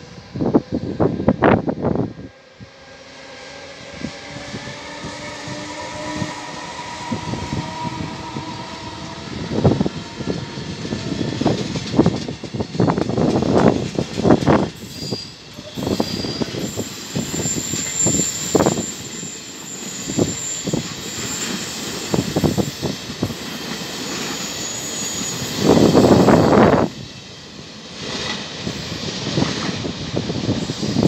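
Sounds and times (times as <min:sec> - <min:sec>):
train wheels clacking over rail joints: 0:11.4 - 0:15.8.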